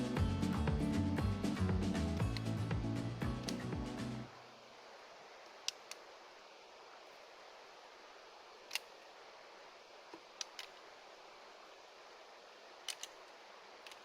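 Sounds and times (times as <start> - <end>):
wood fire crackling: 0.0 - 4.3.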